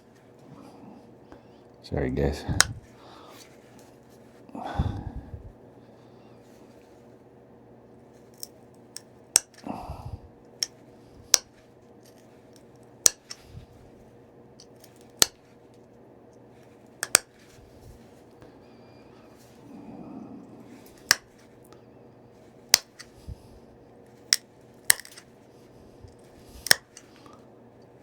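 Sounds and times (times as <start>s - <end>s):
stone flakes popping off: 17.0s - 17.2s, 24.3s - 25.2s, 26.6s - 27.0s.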